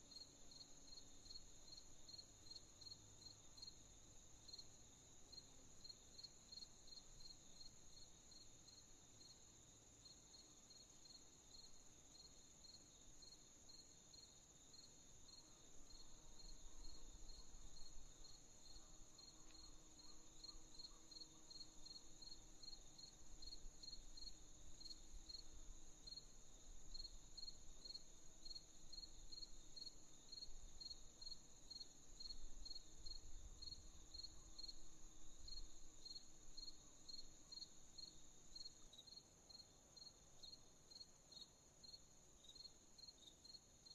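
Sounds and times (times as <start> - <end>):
crickets chirping: 0.1 - 43.9.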